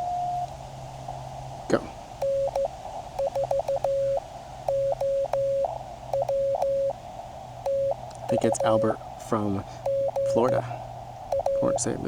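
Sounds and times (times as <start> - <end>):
morse code tone: 2.2 - 7.0, 7.6 - 8.9, 9.8 - 12.0.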